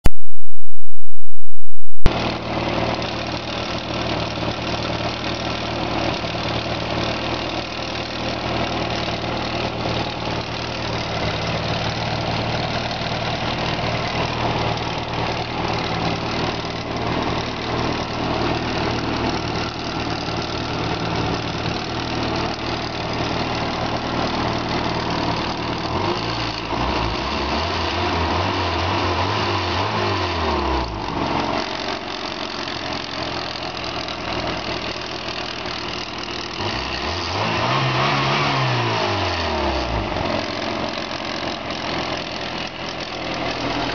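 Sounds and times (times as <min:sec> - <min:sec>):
car engine idling: 0:02.1 - 0:26.1, 0:30.9 - 0:36.6, 0:40.0 - 0:43.9.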